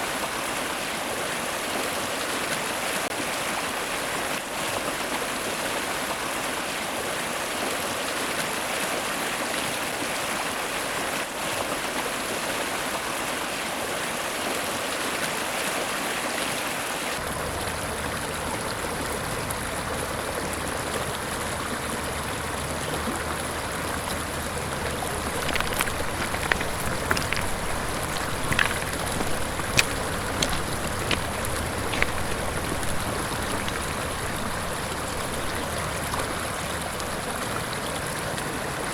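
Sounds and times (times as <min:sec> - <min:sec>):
river rushing over rocks: 0:24.4 - 0:37.6.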